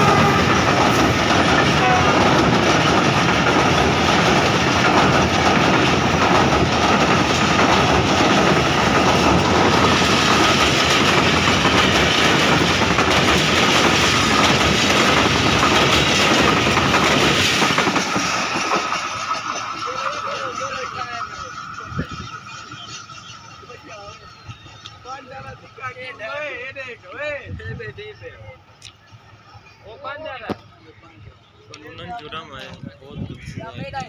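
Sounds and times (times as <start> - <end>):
train wheels clattering over rails: 0.0 - 26.5.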